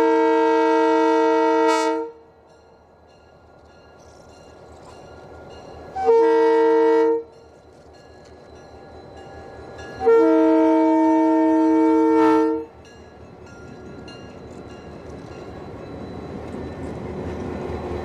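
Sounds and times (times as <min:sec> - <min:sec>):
locomotive air horn: 0:00.0 - 0:02.3, 0:05.9 - 0:07.3, 0:10.0 - 0:12.7
train rumbling: 0:00.0 - 0:18.0.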